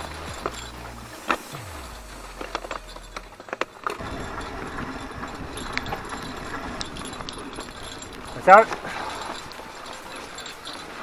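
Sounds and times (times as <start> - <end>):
bike knocking and rattling: 0.0 - 11.0
bike tyres on rough trail: 0.0 - 11.0.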